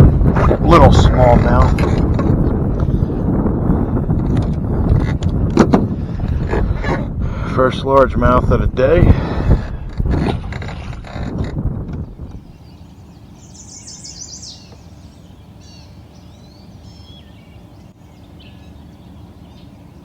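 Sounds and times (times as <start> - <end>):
low background rumble: 0.0 - 20.0
songbirds singing: 11.9 - 20.0.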